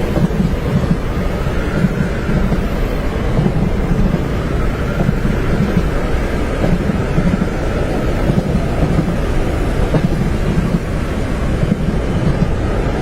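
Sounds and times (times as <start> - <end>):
train running on rails: 0.0 - 13.0.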